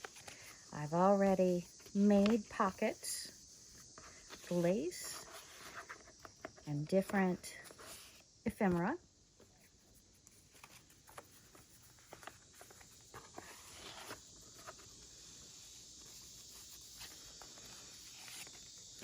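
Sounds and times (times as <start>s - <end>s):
pages rustling: 0.0s - 19.0s
steady hiss: 0.0s - 19.0s.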